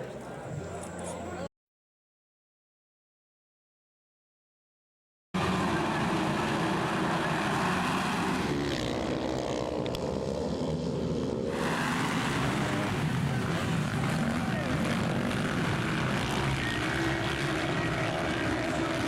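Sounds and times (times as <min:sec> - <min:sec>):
motocross bike engines revving: 0:05.4 - 0:19.0.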